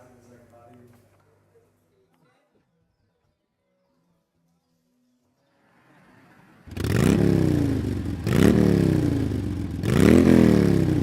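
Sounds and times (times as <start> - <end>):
motorbike engine revving: 6.5 - 11.0.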